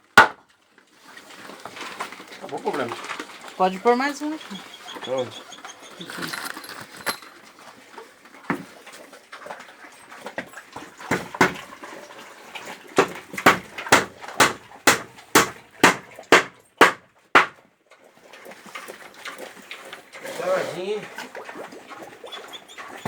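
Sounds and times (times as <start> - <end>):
hammer striking nail: 0.2 - 0.4, 11.1 - 11.6, 13.0 - 17.6.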